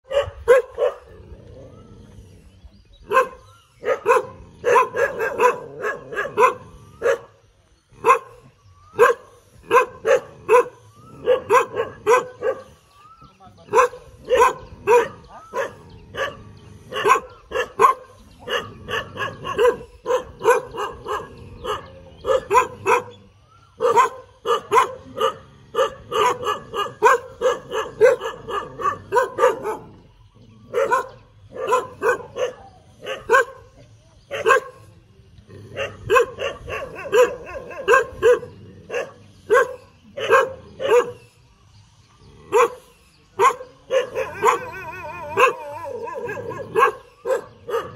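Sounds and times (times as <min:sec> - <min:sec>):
dog barking: 0:00.0 - 0:01.1, 0:03.1 - 0:07.3, 0:08.0 - 0:12.8, 0:13.7 - 0:30.0, 0:30.7 - 0:34.8, 0:35.7 - 0:41.2, 0:42.5 - 0:47.9.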